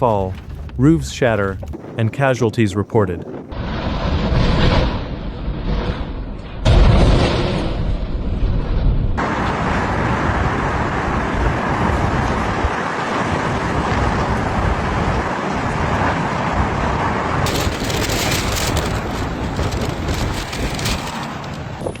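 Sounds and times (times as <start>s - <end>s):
storm wind buffeting microphone: 0.0s - 22.0s.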